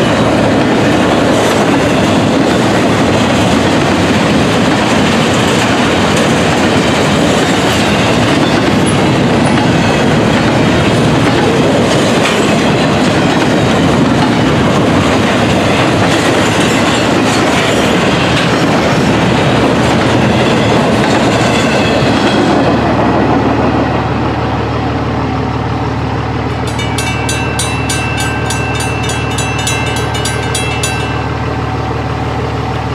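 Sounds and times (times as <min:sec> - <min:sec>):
crossing bells ringing: 0:00.0 - 0:18.7, 0:26.5 - 0:32.6
freight train rumbling and clacking: 0:00.0 - 0:32.9
locomotive engine idling: 0:24.3 - 0:32.9.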